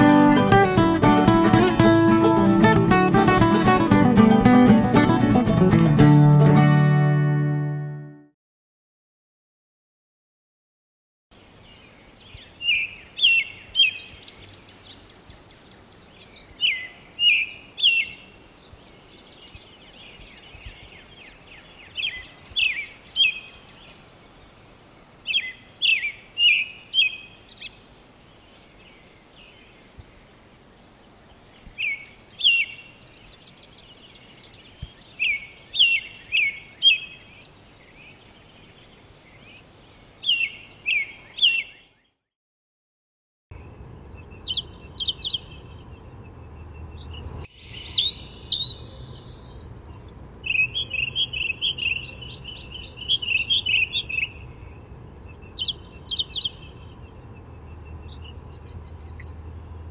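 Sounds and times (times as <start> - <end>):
faint calls of other birds: 11.6 - 42.1, 43.6 - 59.9
robin calling sharp descending notes: 47.6 - 49.6.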